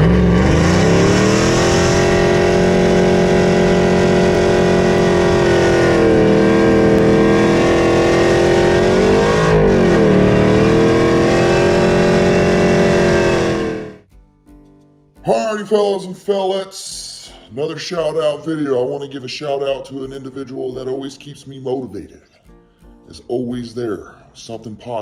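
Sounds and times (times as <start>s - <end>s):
truck engine revving: 0.0s - 14.1s.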